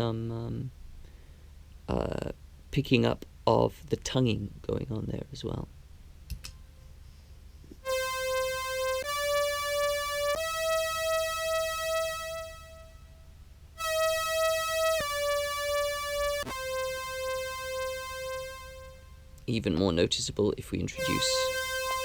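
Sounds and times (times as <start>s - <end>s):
synth tone playing held notes: 7.9s - 13.1s, 13.8s - 19.4s, 21.0s - 22.0s.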